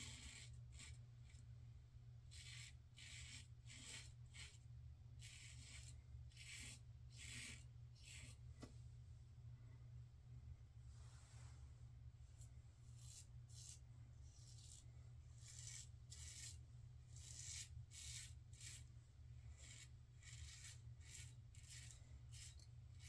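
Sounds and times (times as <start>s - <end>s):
razor scraping stubble: 5.2s - 8.4s, 13.0s - 13.8s, 14.4s - 18.9s, 19.5s - 23.0s.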